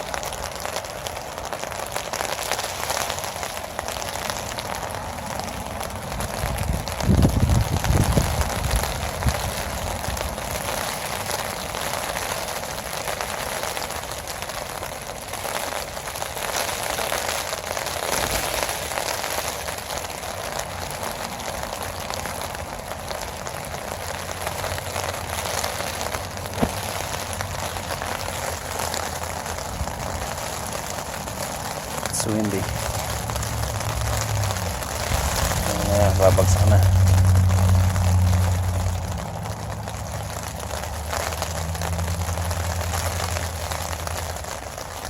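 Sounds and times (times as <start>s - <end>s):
heavy rain hissing: 0.0s - 45.0s
sharp tap: 26.6s - 26.9s.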